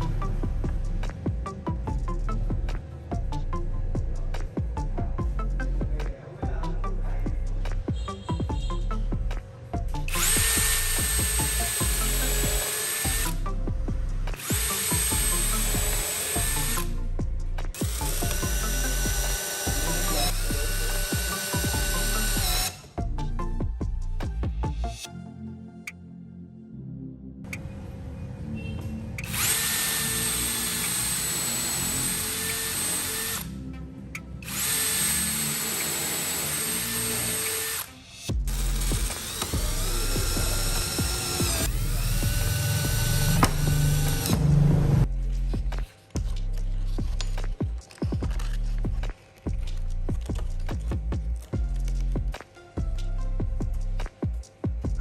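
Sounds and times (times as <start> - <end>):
background music: 0.0 - 55.0
electric power tool whine: 10.1 - 13.6, 14.4 - 17.1, 17.8 - 23.0, 29.2 - 33.5, 34.4 - 45.0.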